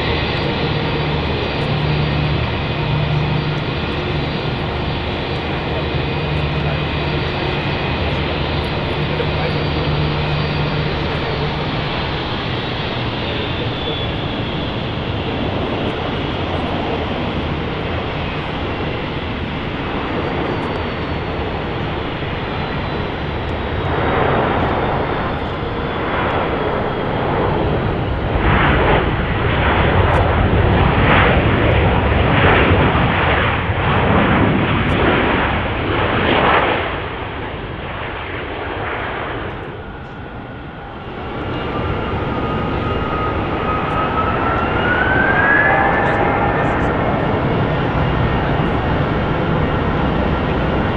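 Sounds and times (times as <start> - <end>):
jet airliner engines: 0.0 - 50.9.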